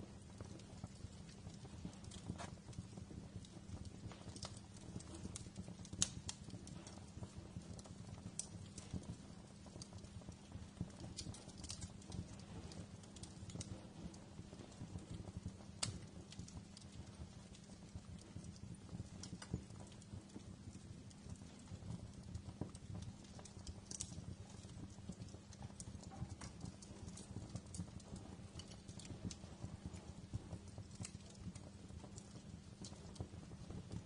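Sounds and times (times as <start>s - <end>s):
low rumble of flames: 0.0s - 34.0s
wood fire crackling: 0.0s - 34.0s.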